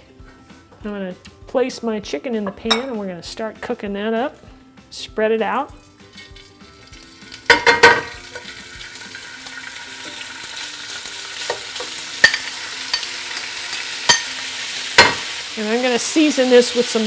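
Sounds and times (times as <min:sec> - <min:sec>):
chicken sizzling in hot oil: 0:05.8 - 0:17.0.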